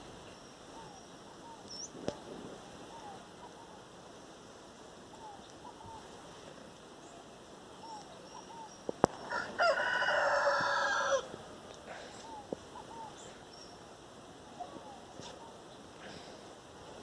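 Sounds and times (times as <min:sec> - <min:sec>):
faint bird chirps: 0:00.2 - 0:03.9, 0:05.1 - 0:09.4, 0:12.0 - 0:16.2
rooster crowing: 0:09.2 - 0:11.3.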